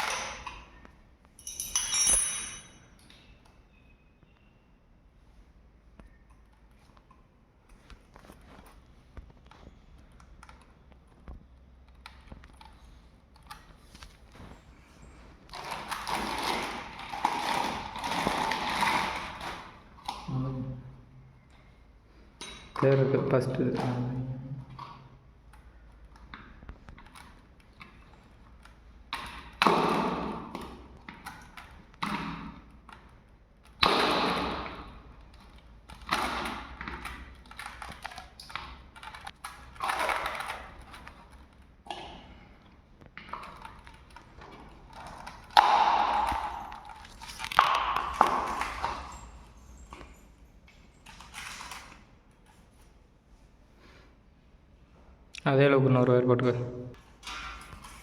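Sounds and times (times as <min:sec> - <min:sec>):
tools and parts clinking and clattering: 0:00.0 - 0:03.4, 0:22.4 - 0:23.0.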